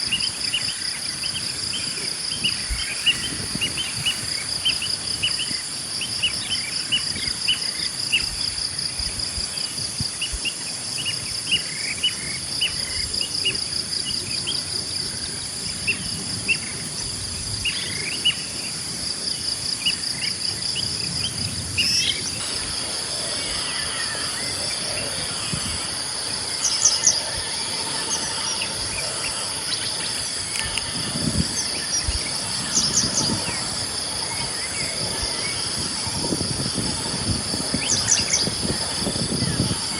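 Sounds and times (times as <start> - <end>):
insects trilling: 0.0 - 39.9
birds chirping: 19.8 - 39.9.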